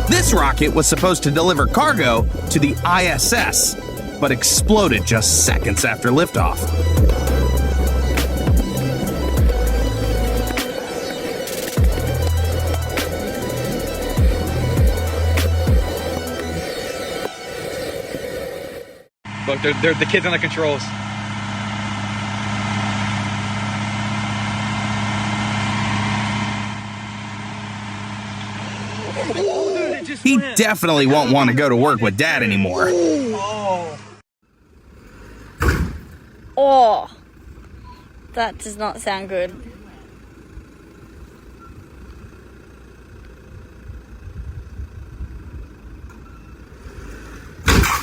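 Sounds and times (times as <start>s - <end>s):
low uneven rumble: 0.0s - 16.7s, 33.5s - 48.0s
engine humming: 0.0s - 48.0s
sudden loud crash: 35.6s - 36.3s, 47.6s - 48.0s.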